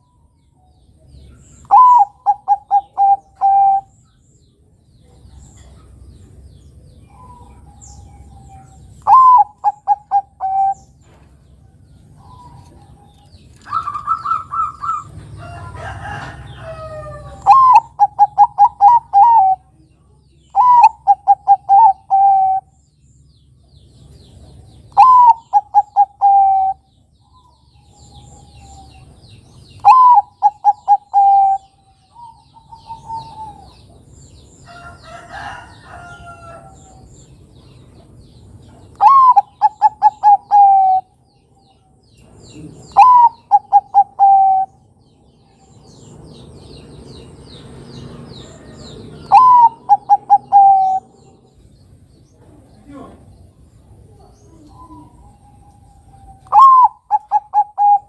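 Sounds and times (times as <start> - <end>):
dove cooing: 1.6 - 3.9, 7.1 - 10.9, 12.2 - 15.2, 15.8 - 19.7, 20.6 - 22.7, 24.9 - 26.9, 29.8 - 34.0, 38.9 - 41.2, 42.5 - 44.8, 48.6 - 51.3, 54.1 - 58.0
rough low bird call: 38.9 - 41.2, 42.2 - 44.9, 48.4 - 51.4.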